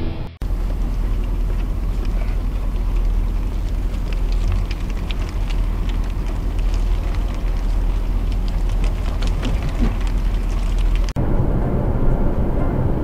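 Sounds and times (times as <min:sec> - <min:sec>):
car engine idling: 0:00.4 - 0:11.2
sheep hooves clicking on asphalt: 0:00.4 - 0:11.2.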